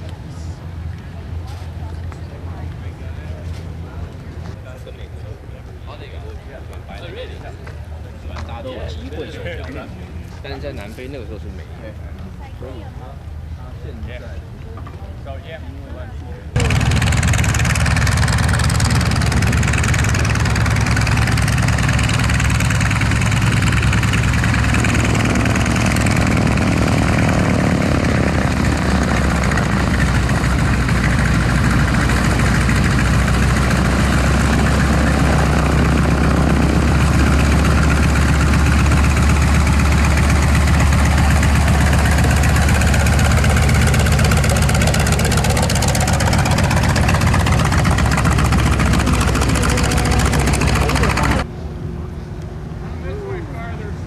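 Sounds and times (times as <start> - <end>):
aircraft engine drone: 16.6 - 54.0.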